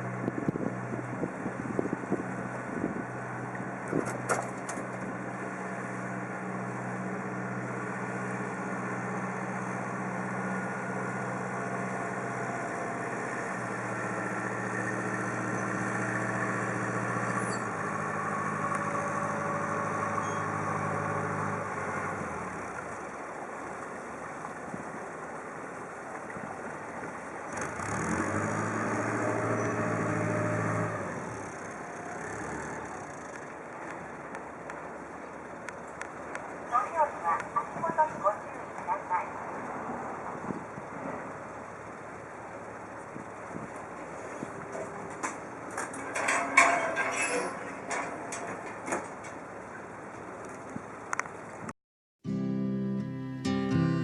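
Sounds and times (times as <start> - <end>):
ferry engine running: 0.0 - 24.2, 25.0 - 51.6.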